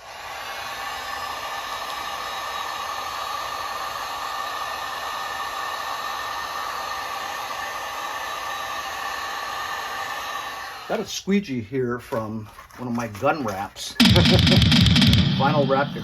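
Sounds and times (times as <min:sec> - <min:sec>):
heat gun blowing air: 0:00.0 - 0:10.9.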